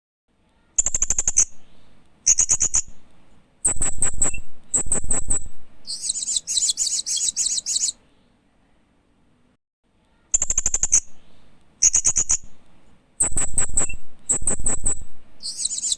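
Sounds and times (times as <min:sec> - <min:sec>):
parrot chirping: 0:02.2 - 0:03.0, 0:03.6 - 0:08.0, 0:10.3 - 0:11.2, 0:11.8 - 0:12.6, 0:13.2 - 0:15.9.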